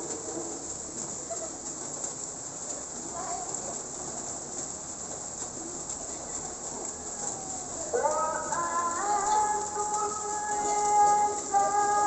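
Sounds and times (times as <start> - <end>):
light rain on wet street: 0.0 - 12.0.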